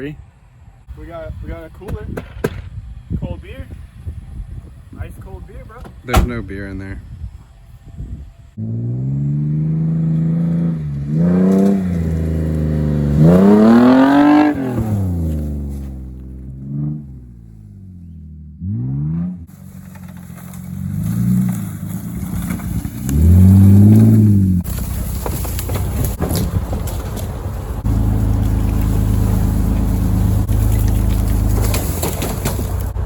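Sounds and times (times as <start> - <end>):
car engine revving: 8.5 - 26.2, 27.6 - 33.0
rushing rumble: 19.4 - 33.0.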